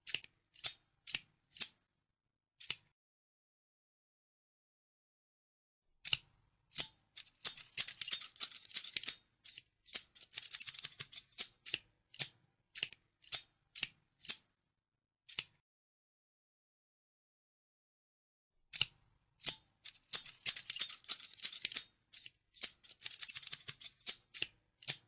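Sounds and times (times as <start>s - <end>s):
scissors snipping: 0.0s - 1.8s, 2.6s - 2.9s, 6.0s - 14.4s, 15.3s - 15.6s, 18.7s - 25.0s.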